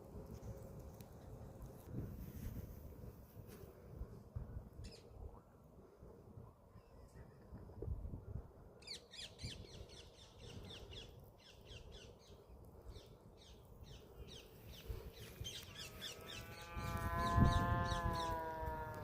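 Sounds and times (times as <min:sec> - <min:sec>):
birds chirping: 0:08.8 - 0:18.9.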